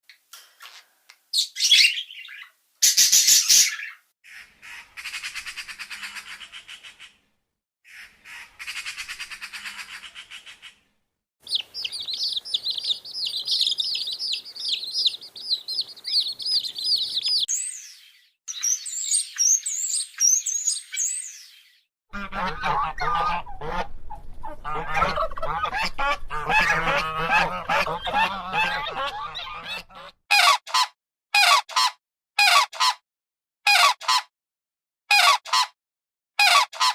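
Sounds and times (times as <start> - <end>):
bird harsh squawks: 1.4 - 7.2, 7.9 - 10.8
buzzy rattling bird calls: 11.4 - 17.6
high rapid bird twittering: 11.4 - 21.5
honking bird gabble: 22.2 - 30.6.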